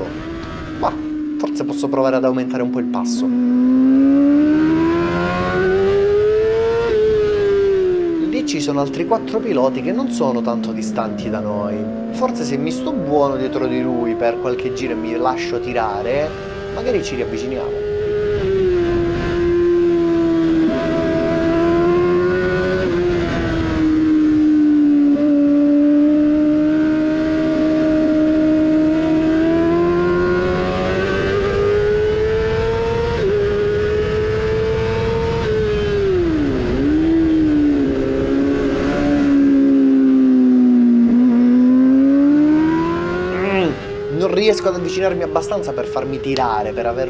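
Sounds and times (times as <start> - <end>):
motorcycle engine revving: 0.0 - 47.0
wind noise: 17.6 - 25.2.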